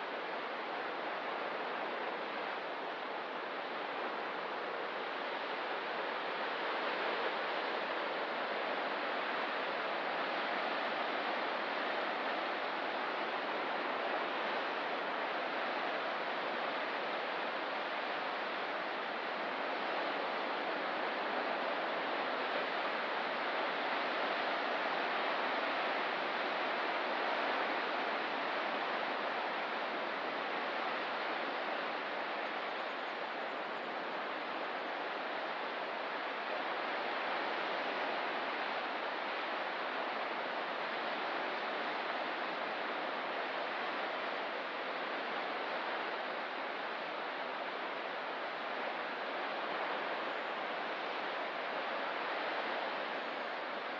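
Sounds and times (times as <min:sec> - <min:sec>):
ocean surf washing on shore: 0:00.0 - 0:53.9.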